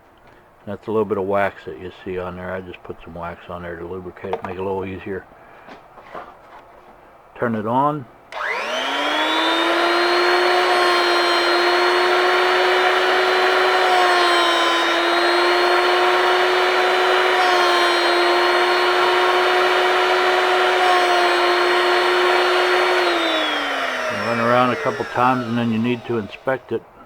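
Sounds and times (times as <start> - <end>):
grinding motor whine: 8.3 - 27.0.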